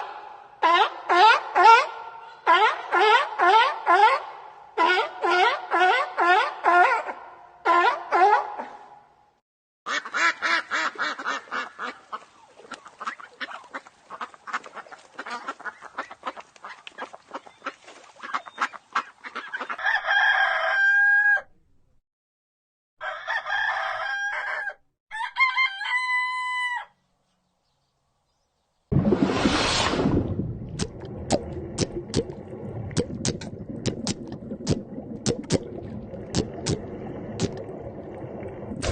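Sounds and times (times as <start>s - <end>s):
rooster crowing: 19.8s - 21.5s, 23.0s - 27.0s.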